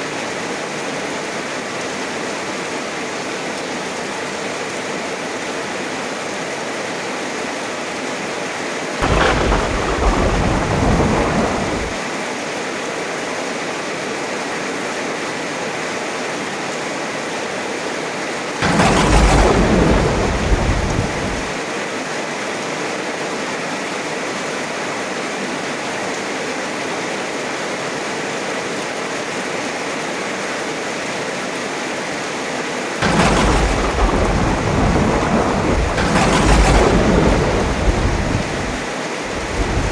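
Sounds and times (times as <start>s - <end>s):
heavy rain: 8.7s - 12.8s, 16.2s - 22.2s, 28.7s - 39.9s
thunder claps rumbling: 9.0s - 12.0s, 18.6s - 21.6s, 33.0s - 39.9s.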